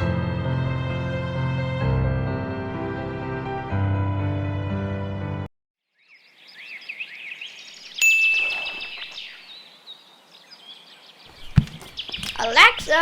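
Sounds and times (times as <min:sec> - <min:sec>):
birds chirping: 0:06.0 - 0:13.0
bright ringing ding: 0:08.0 - 0:08.9.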